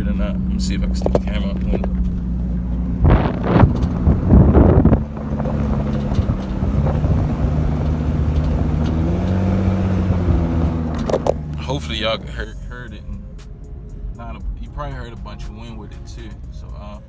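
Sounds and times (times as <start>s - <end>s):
car exhaust drone: 0.0s - 17.0s
wind gusts on microphone: 1.0s - 11.5s.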